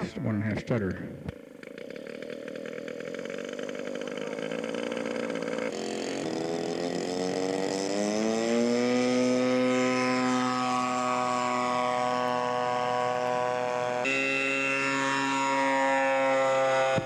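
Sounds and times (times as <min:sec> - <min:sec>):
model airplane engine running: 0:00.0 - 0:17.0.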